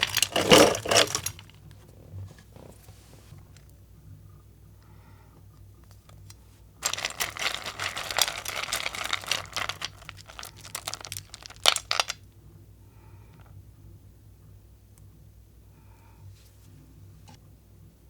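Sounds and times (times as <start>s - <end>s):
candy wrapper crinkling: 0.0s - 1.5s, 6.8s - 12.2s.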